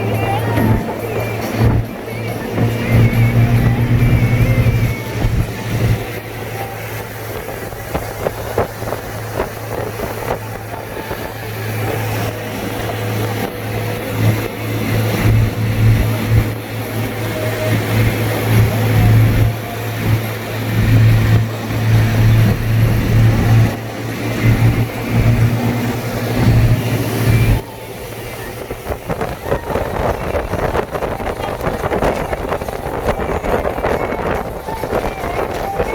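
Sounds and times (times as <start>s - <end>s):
car engine and tyre noise: 0.0s - 35.9s
low drone: 0.0s - 35.9s.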